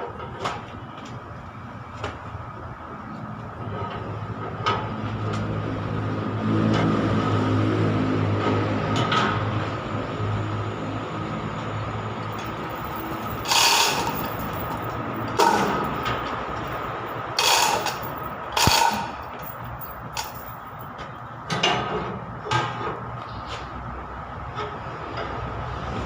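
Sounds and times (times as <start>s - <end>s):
harsh bursts of tool noise: 12.3s - 20.6s.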